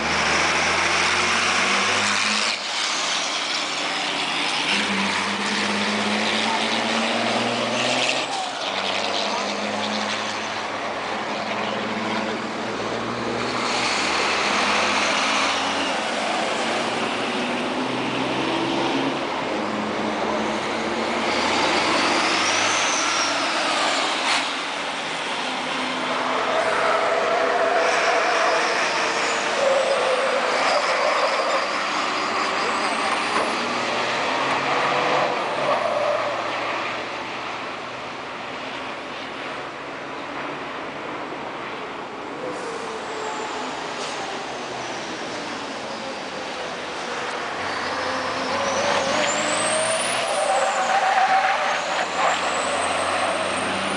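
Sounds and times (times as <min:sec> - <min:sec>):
racing truck engines running: 0:00.0 - 0:53.9.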